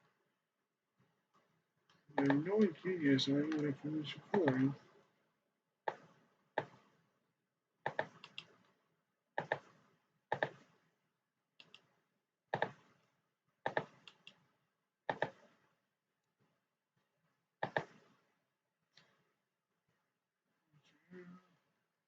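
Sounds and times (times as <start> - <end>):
computer mouse clicking: 2.2 - 2.8, 3.4 - 4.7, 7.8 - 8.8, 9.4 - 9.7, 10.3 - 10.7, 11.6 - 11.9, 12.5 - 12.8, 13.7 - 14.4, 15.1 - 15.5, 17.6 - 18.0.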